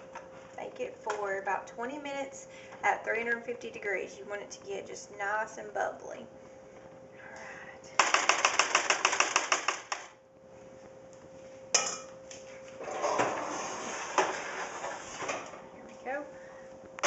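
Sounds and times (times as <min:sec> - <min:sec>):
kitchen clatter and rustling: 0:12.8 - 0:15.6
utensil scraping baking dish: 0:12.8 - 0:15.6.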